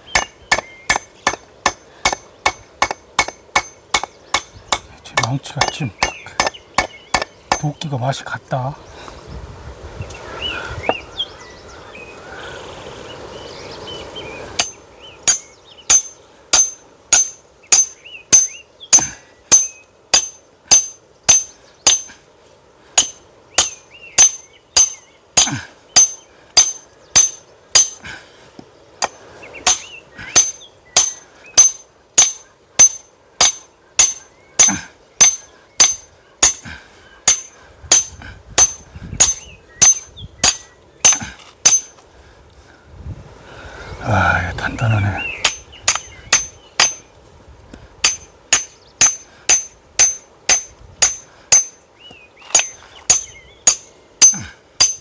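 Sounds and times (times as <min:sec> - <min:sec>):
firewood splitting strikes: 0:00.1 - 0:07.8, 0:14.6 - 0:22.2, 0:23.0 - 0:28.2, 0:29.0 - 0:42.0, 0:45.4 - 0:47.1, 0:48.0 - 0:51.8, 0:52.5 - 0:55.0.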